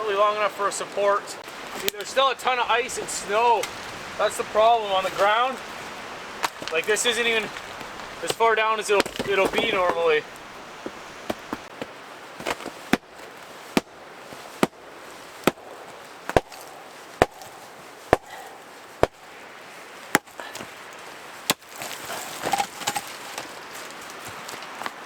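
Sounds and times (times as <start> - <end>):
scraping and rustling: 1.4 - 25.0
hand tool chopping strikes: 15.4 - 19.2.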